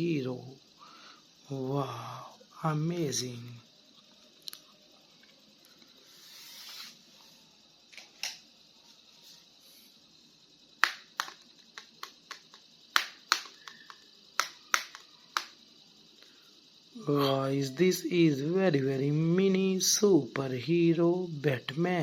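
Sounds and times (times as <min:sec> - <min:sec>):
plastic clicks and taps: 0:10.8 - 0:15.5.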